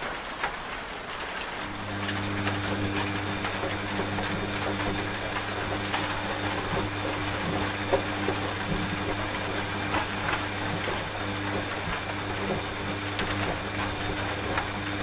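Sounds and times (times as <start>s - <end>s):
rain pattering: 0.0s - 15.0s
washing machine humming: 0.1s - 15.0s.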